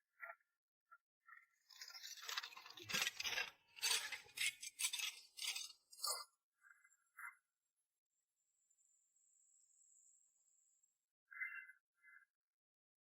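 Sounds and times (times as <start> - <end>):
hard objects scraping and clinking: 1.8 - 6.3.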